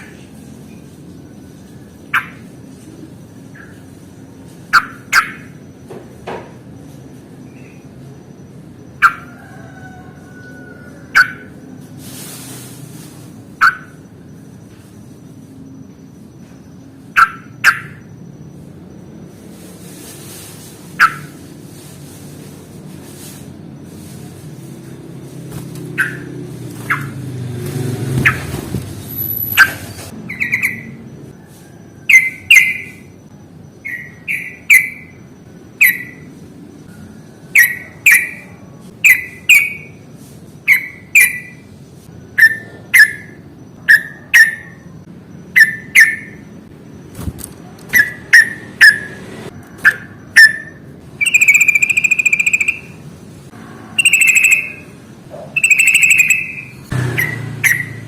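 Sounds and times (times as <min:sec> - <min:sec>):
harsh drawn-out bird notes: 0:00.0 - 0:58.0
bird chirping sharply: 0:29.1 - 0:31.0, 0:33.7 - 0:36.3, 0:49.8 - 0:53.0, 0:54.0 - 0:58.0.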